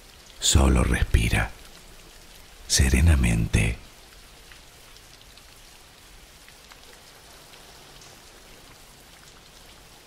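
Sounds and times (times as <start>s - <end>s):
rain hissing: 0.0s - 4.9s
raindrop ticks: 0.1s - 10.0s.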